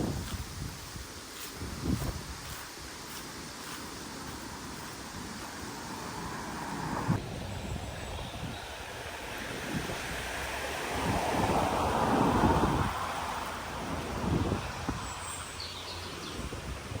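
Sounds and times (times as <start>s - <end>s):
car passing by: 5.4s - 8.0s, 8.6s - 16.2s.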